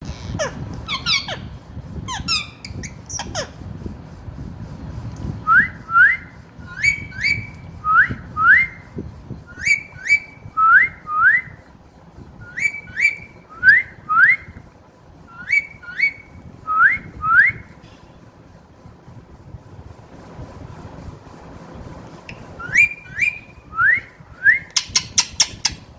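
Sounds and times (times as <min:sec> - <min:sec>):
parrot squeaky calls: 0:00.1 - 0:03.6, 0:06.7 - 0:07.5, 0:15.4 - 0:16.2, 0:24.8 - 0:25.8
parrot harsh chirp: 0:00.3 - 0:01.5
parrot whistling: 0:00.4 - 0:01.5, 0:02.1 - 0:03.5, 0:05.5 - 0:08.8, 0:09.5 - 0:11.5, 0:12.4 - 0:14.5, 0:15.3 - 0:17.7, 0:22.6 - 0:25.8.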